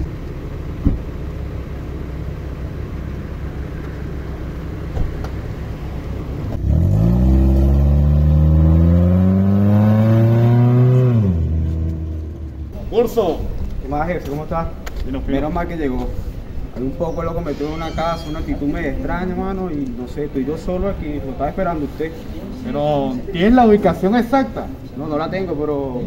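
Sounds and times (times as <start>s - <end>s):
car engine revving: 2.6s - 12.8s.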